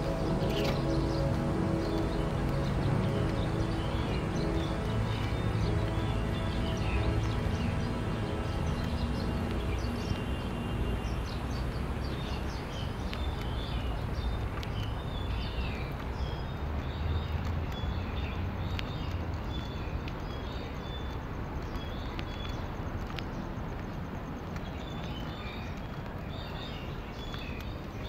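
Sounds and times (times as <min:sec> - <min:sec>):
low outdoor rumble: 0:00.0 - 0:14.7
small birds twittering: 0:00.0 - 0:28.0.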